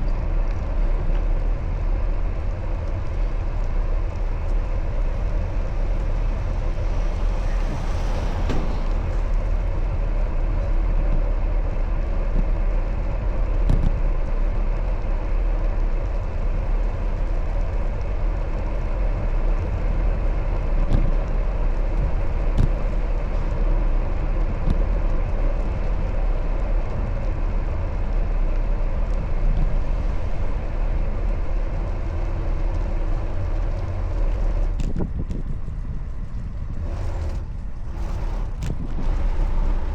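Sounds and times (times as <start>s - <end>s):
wind and road rumble: 0.0s - 39.9s
faint bicycle clicks: 12.2s - 39.9s.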